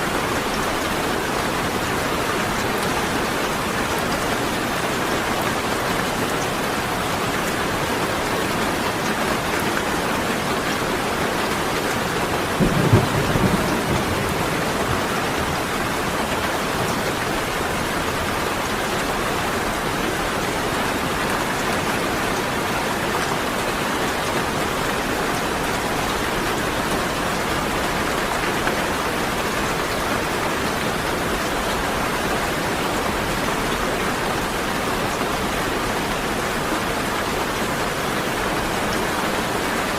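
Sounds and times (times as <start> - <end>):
steady rain: 0.0 - 39.9
low thunder clap: 12.6 - 15.9.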